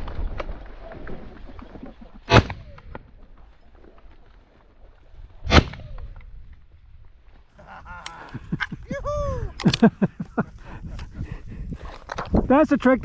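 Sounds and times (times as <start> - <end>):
wind rumble on microphone: 5.1 - 13.0.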